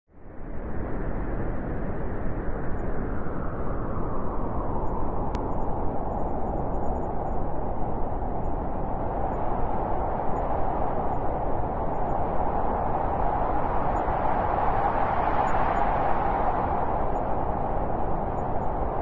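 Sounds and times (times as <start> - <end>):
howling blizzard wind: 0.1 - 19.0
faint click: 5.3 - 5.6.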